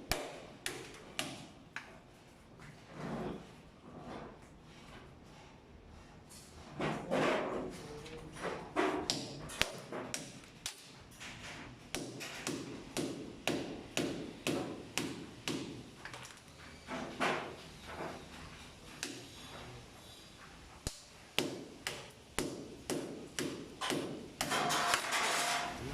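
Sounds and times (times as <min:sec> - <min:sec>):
hand tool knocking and scraping: 0:21.4 - 0:25.8.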